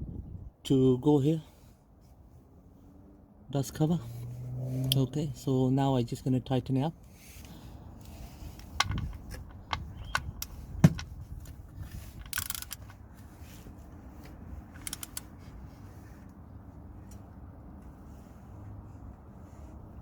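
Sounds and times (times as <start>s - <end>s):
rustle: 3.9s - 5.1s, 7.0s - 20.0s
socket wrench clicking: 12.2s - 13.0s, 14.7s - 15.3s.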